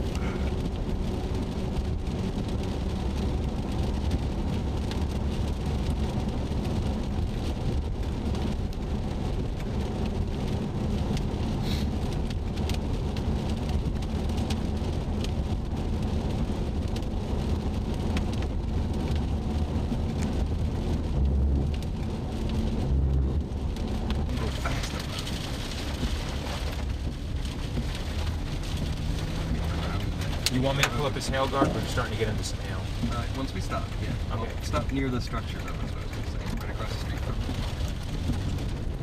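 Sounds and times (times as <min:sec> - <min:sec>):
engine and road rumble: 0:00.0 - 0:39.0
rain on car roof: 0:00.0 - 0:39.0.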